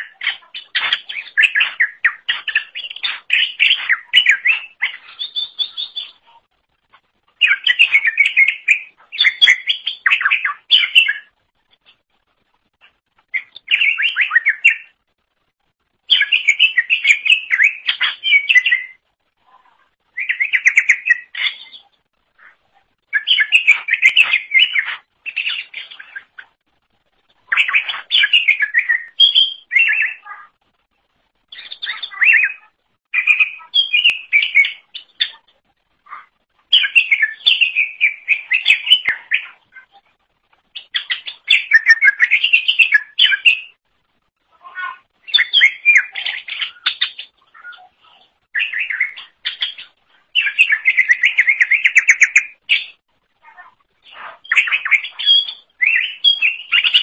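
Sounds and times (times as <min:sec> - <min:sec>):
bird singing varied phrases: 0:00.0 - 0:06.5, 0:07.4 - 0:11.4, 0:13.3 - 0:15.0, 0:16.0 - 0:26.6, 0:27.4 - 0:30.6, 0:31.4 - 0:40.0, 0:40.7 - 0:43.8, 0:44.6 - 0:57.0.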